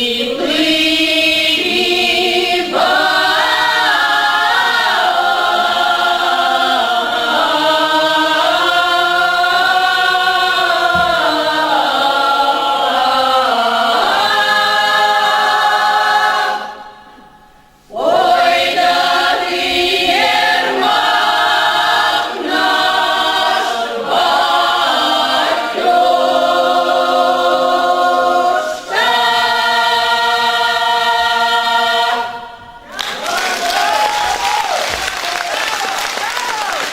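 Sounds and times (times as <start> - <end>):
choir singing a cappella: 0.0 - 34.5
applause: 32.9 - 36.9.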